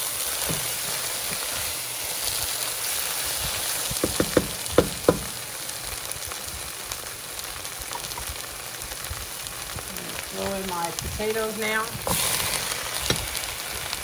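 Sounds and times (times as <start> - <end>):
sauce sizzling in a pot: 0.0 - 14.0
spoon knocking against pot: 4.0 - 5.3.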